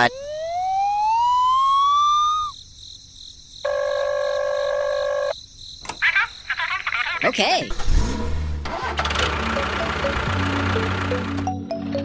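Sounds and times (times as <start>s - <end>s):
rising pitched tone: 0.1s - 2.5s.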